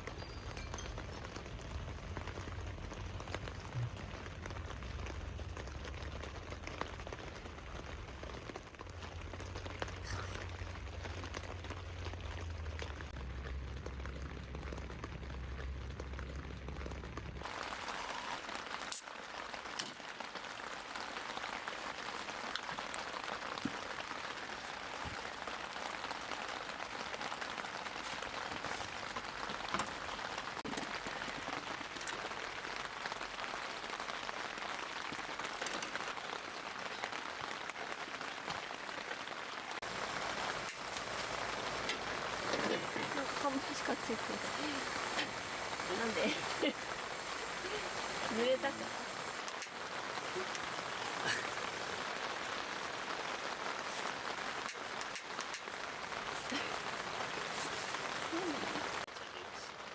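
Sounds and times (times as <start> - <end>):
steady rain falling: 0.0 - 59.9
sharp raindrop hits: 39.8 - 59.1.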